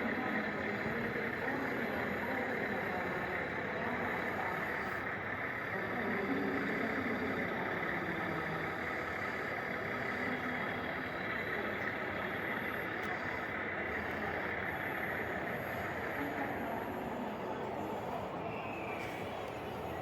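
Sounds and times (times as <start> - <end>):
toy truck engine idling: 0.0 - 18.3
faint murmur of voices: 0.0 - 20.0.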